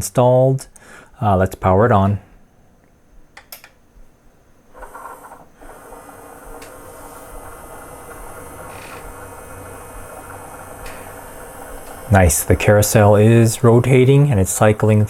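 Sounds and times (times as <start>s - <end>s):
motor whirring: 4.7s - 15.0s
cd changer click: 4.8s - 15.0s.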